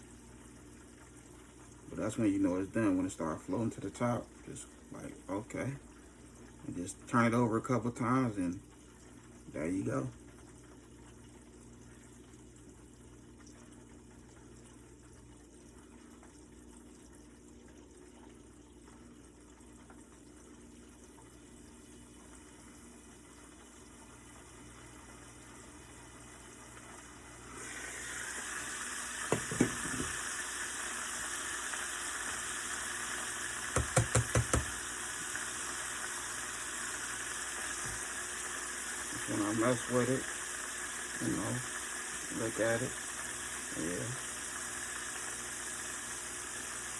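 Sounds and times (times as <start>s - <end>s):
wings sizzling in hot grease: 24.2s - 46.9s
knocks: 29.3s - 30.1s, 33.7s - 34.8s
quick taps: 33.7s - 34.8s.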